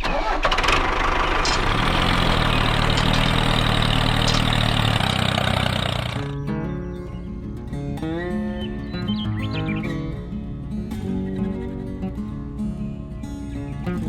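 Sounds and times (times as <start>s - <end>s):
motor humming: 0.0s - 6.4s.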